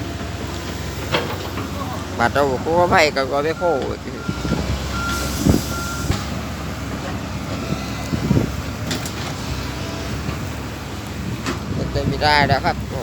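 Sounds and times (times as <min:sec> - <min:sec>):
backhoe engine running: 0:00.0 - 0:13.0
reversing alarm beeping: 0:02.0 - 0:06.3.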